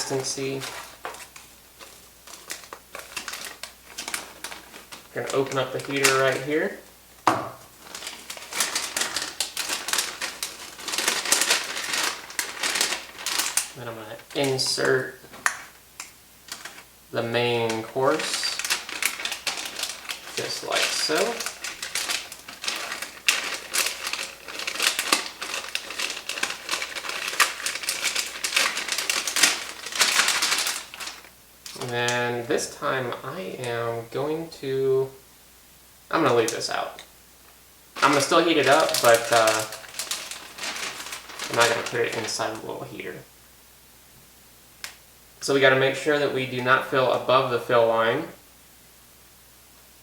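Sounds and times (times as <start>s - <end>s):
plastic pouch crinkling: 0.0s - 32.7s, 38.0s - 43.0s.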